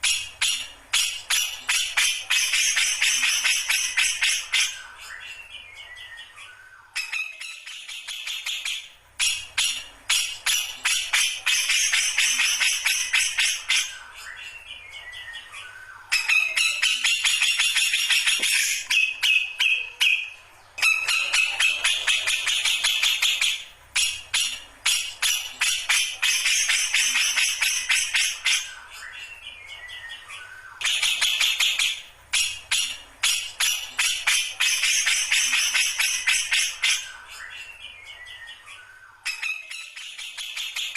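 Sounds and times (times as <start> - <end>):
bird singing rapid chattering song: 0.0 - 40.9.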